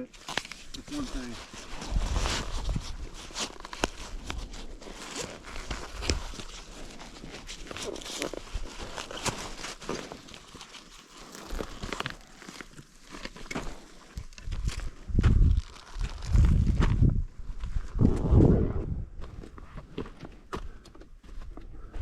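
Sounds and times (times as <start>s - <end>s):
footsteps on trail: 0.2s - 18.0s, 19.2s - 22.0s
hand tools clicking and scraping: 7.8s - 13.9s.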